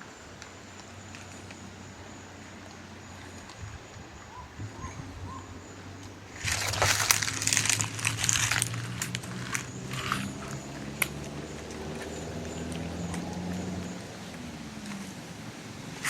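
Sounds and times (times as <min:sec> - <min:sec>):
footsteps crunching dry leaves: 0:06.3 - 0:14.9.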